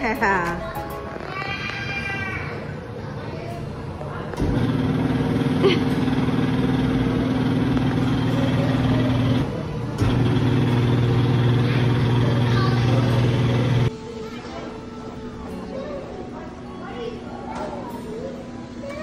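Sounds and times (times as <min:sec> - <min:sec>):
electric blower motor hum: 0:04.4 - 0:13.9.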